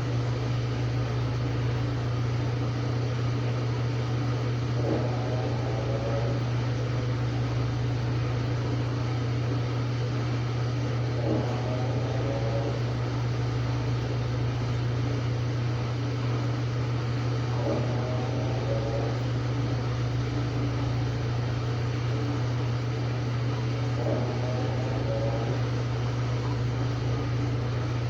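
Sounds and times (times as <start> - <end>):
washing machine motor hum: 0.0 - 28.0.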